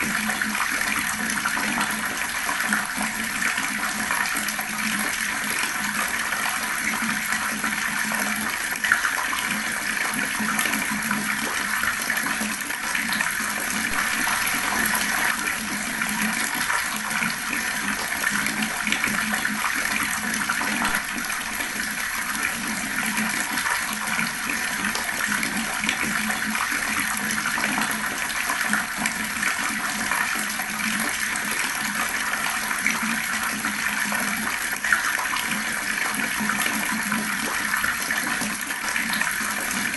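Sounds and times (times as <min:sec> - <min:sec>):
water flowing fast: 0:00.0 - 0:39.9.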